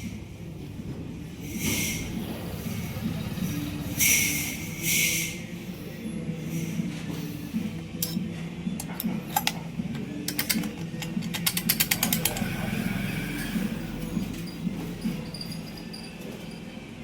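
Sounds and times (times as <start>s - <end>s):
sharp mechanical clicks: 10.2s - 12.5s.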